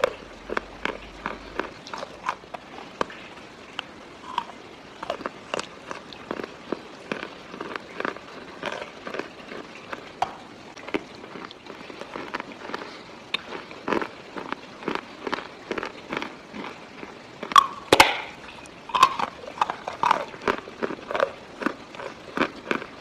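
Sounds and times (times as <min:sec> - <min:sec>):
chalk being bitten and chewed: 0:00.0 - 0:03.2, 0:03.8 - 0:06.5, 0:18.9 - 0:22.9.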